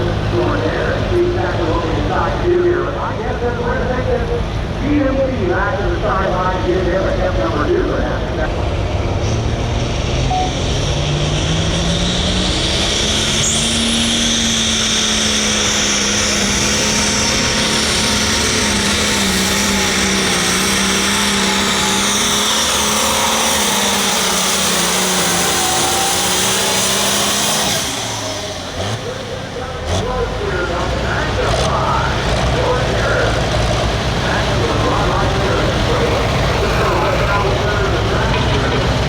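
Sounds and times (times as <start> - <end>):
tractor diesel engine running: 0.0 - 39.0
high whine: 10.1 - 39.0.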